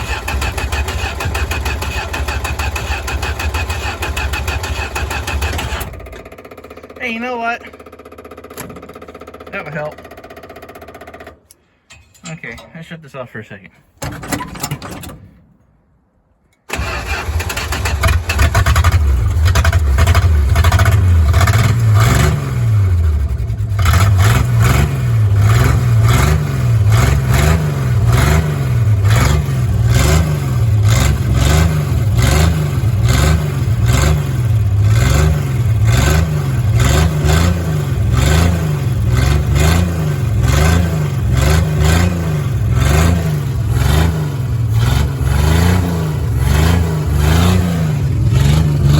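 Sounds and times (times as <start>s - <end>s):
loud engine revving: 16.7s - 48.9s.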